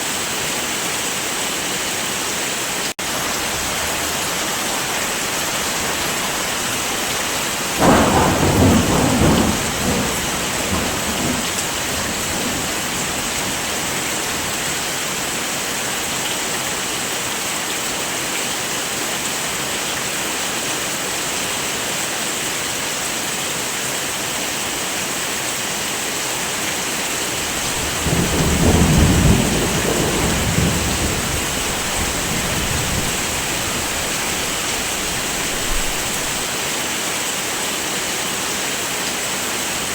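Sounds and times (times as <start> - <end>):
heavy rain: 0.0 - 39.9
thunder rumbling: 7.7 - 14.8, 27.0 - 36.4.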